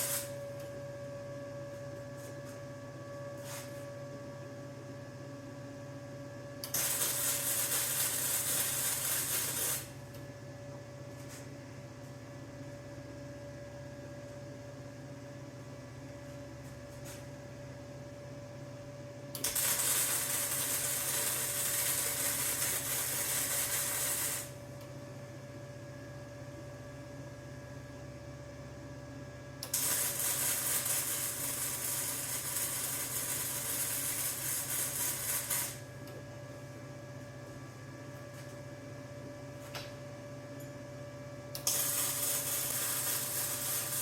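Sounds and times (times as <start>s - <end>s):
welder arc crackling: 0.0s - 0.4s, 6.7s - 9.9s, 19.4s - 24.6s, 29.7s - 35.8s, 41.6s - 44.0s
steady electrical hum: 0.0s - 44.0s.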